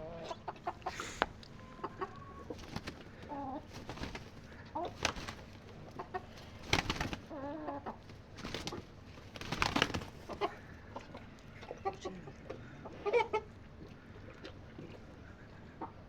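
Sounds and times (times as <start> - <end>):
chickens clucking: 0.0 - 16.0
rustling: 2.4 - 7.3, 7.9 - 10.5.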